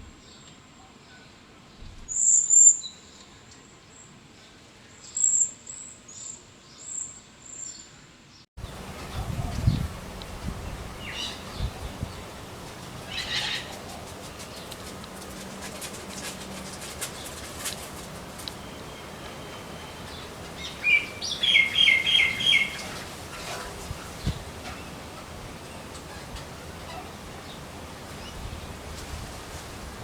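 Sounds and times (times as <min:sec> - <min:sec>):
outdoor background noise: 0:00.0 - 0:30.0
small birds chirping: 0:08.6 - 0:30.0.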